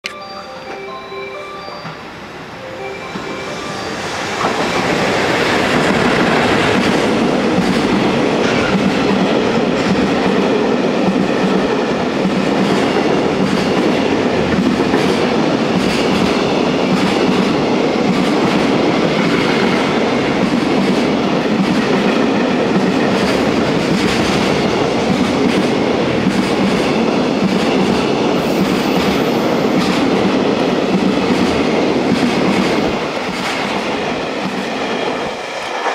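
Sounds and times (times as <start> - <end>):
freight train wheels on rail: 0.1 - 35.9
clickety-clack of rail joints: 4.4 - 35.9.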